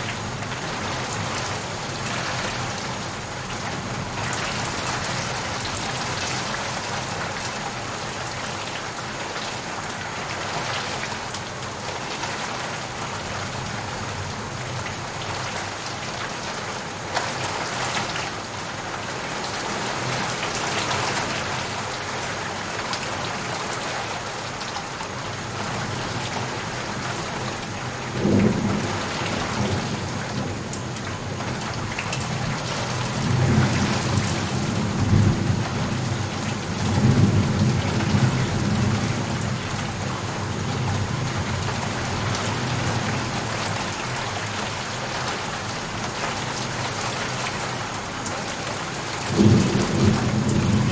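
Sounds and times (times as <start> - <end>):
steady rain falling: 0.0 - 50.9
thunder clap and rumble: 49.3 - 50.9.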